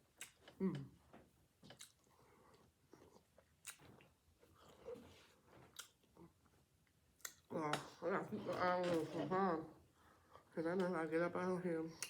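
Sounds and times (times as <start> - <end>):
faint chewing: 0.0 - 9.2.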